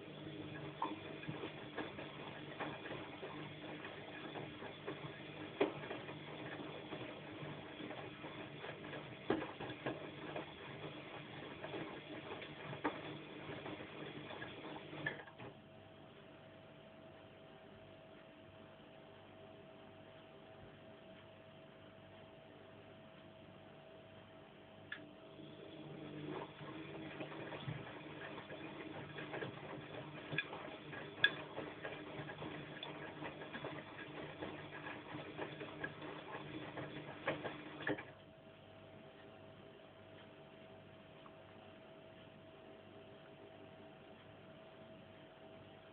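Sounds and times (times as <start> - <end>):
washing machine drum turning: 0.0 - 15.5, 25.6 - 38.1
faint steady hum: 0.0 - 45.9.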